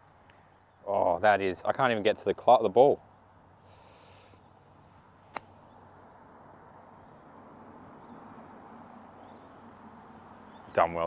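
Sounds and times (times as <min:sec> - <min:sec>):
faint outdoor ambience: 0:00.0 - 0:11.0
golf club striking ball: 0:05.3 - 0:05.8.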